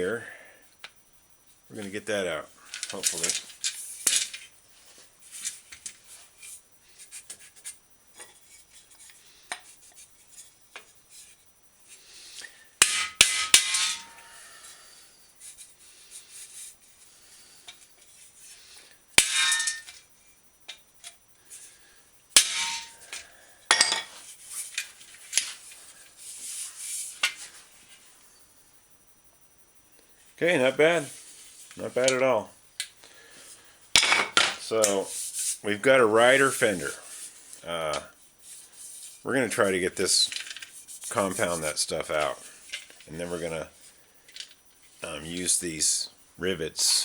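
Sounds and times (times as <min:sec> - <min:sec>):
metal scraping: 0:12.8 - 0:14.4, 0:19.2 - 0:20.0, 0:22.4 - 0:23.1.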